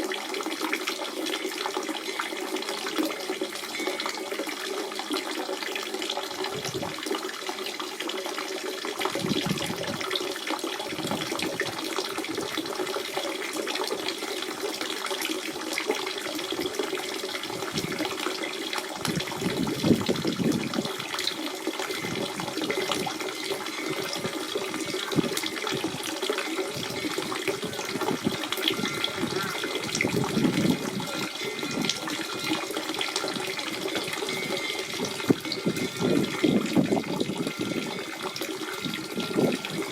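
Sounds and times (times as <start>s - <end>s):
spring water running and splashing: 0.0s - 39.9s.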